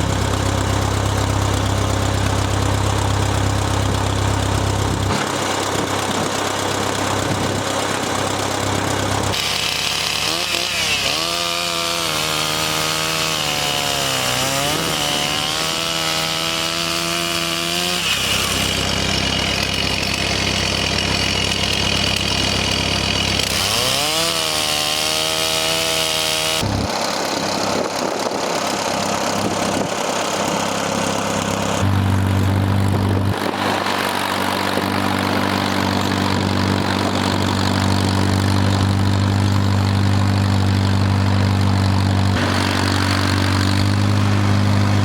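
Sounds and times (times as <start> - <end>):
engine revving: 0.0 - 45.0.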